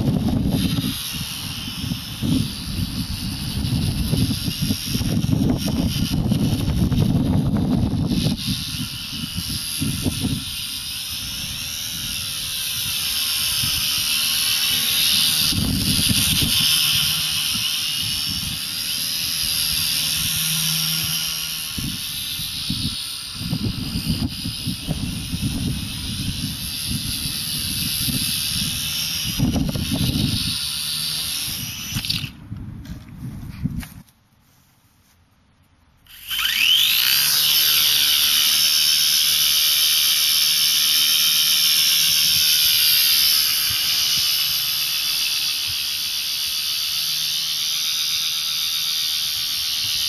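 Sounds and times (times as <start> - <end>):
rc helicopter motor and rotors whining: 0.0 - 34.1, 35.9 - 50.0
wind rumbling on microphone: 0.0 - 34.1.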